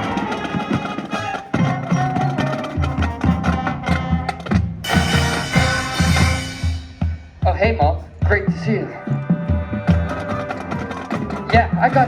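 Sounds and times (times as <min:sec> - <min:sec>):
sharp percussion taps: 0:00.0 - 0:08.5
marching band playing: 0:00.0 - 0:12.0
sustained horn lines: 0:03.4 - 0:07.1
cymbal crash: 0:04.8 - 0:07.4.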